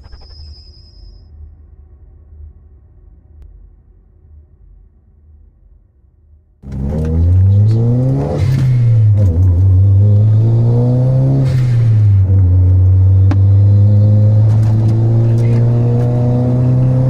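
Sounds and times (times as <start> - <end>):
car engine accelerating: 6.6 - 17.0.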